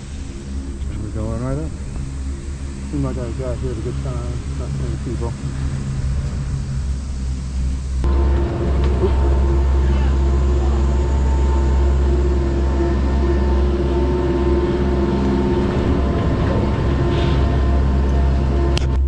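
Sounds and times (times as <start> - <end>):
lift mechanical hum: 0.0 - 19.0.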